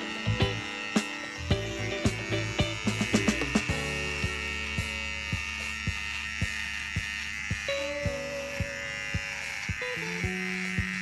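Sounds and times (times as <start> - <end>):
background music with a beat: 0.0 - 7.8
beard trimmer buzzing: 0.0 - 11.0.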